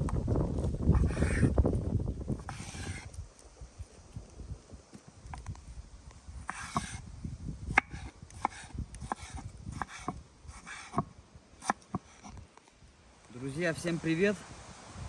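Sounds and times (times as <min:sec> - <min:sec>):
rustling scrapes: 0:02.4 - 0:04.2.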